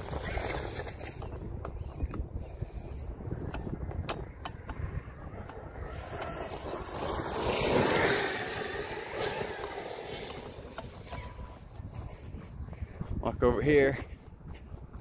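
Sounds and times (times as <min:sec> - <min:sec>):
toy truck electric motor: 0:05.1 - 0:11.1.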